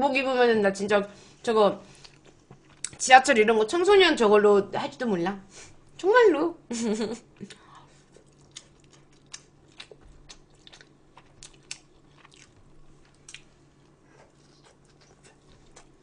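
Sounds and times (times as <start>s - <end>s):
person chewing food: 2.0s - 3.0s, 7.4s - 16.0s.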